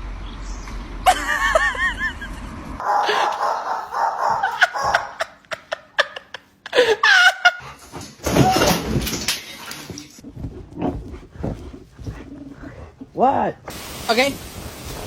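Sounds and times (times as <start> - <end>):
people laughing: 1.1 - 7.7.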